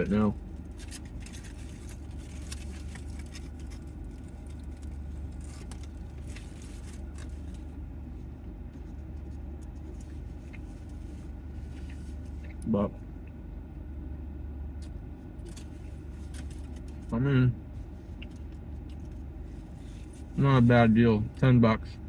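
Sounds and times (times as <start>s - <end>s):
steady low hum: 0.0s - 22.0s
clicks and crackles of eating: 0.6s - 7.7s.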